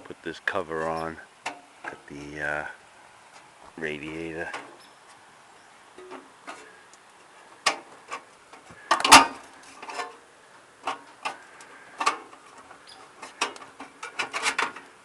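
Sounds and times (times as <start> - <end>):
short irregular clicks and knocks: 6.0 - 10.2, 10.8 - 15.0.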